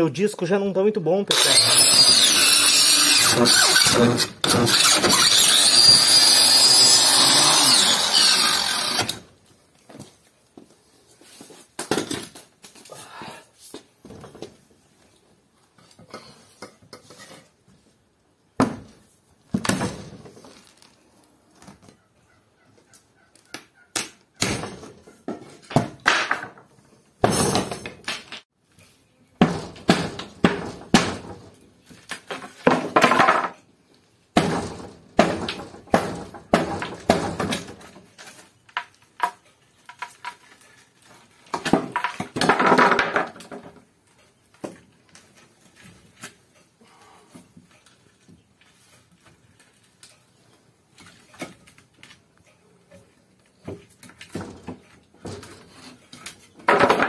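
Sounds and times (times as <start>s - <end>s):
masonry knocked out of wall: 1.3s - 9.2s, 29.4s - 31.5s, 34.3s - 38.0s, 41.5s - 43.8s, 56.6s - 57.0s.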